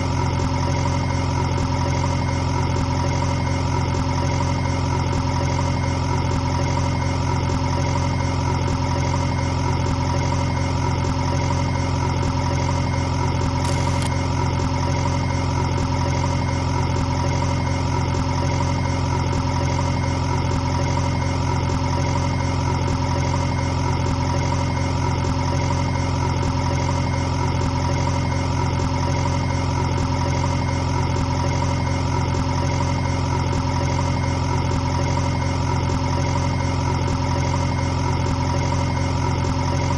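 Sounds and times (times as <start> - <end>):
motor humming steadily: 13.6 - 14.2.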